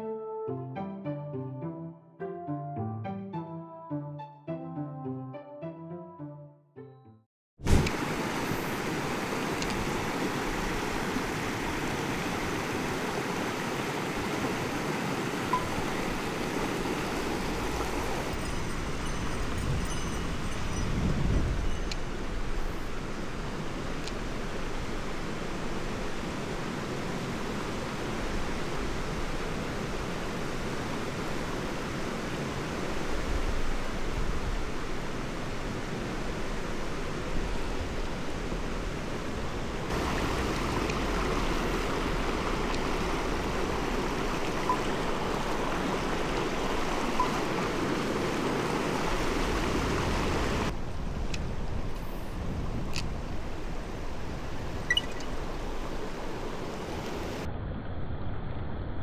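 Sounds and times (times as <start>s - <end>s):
stream rushing over rocks: 7.6s - 21.5s, 22.1s - 50.8s, 53.2s - 57.5s.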